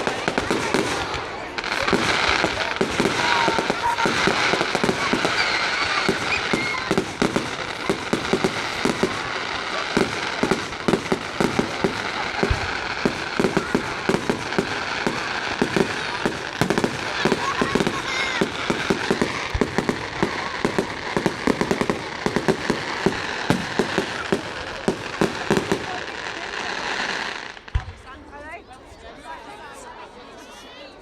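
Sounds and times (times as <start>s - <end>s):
fireworks bangs: 0.0s - 28.6s
fireworks crackling: 0.0s - 28.6s.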